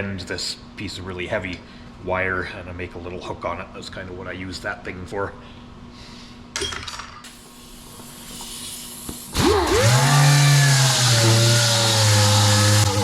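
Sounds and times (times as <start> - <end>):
electric power tool whining: 9.3 - 13.0.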